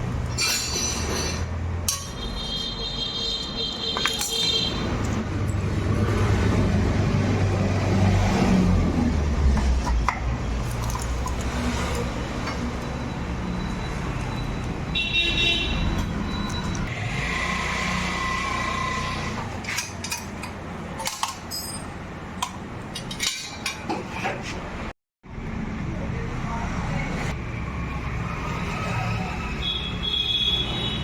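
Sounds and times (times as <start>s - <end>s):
road traffic engine rumble: 0.0s - 31.0s
vehicle horn: 2.1s - 4.9s, 14.9s - 16.1s, 29.6s - 31.0s.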